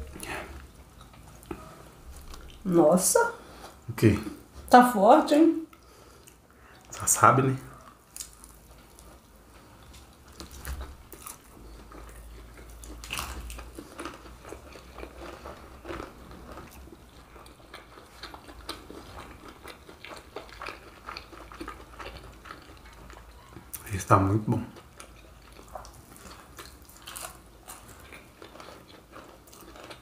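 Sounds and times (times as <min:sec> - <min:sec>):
crisp crunching of fried snacks: 0:08.1 - 0:09.3, 0:09.9 - 0:24.0, 0:24.7 - 0:30.0.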